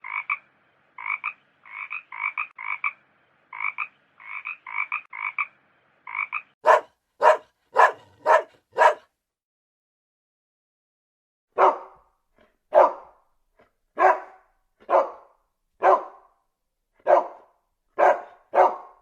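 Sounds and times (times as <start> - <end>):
frog croaking: 0.0 - 6.6
dog barking: 6.6 - 9.1, 11.5 - 13.2, 14.0 - 16.3, 17.0 - 19.0.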